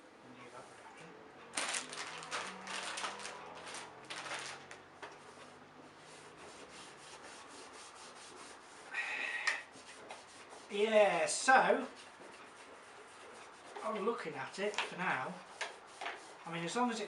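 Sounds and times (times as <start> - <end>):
hand rubbing and scrubbing: 5.0 - 17.0.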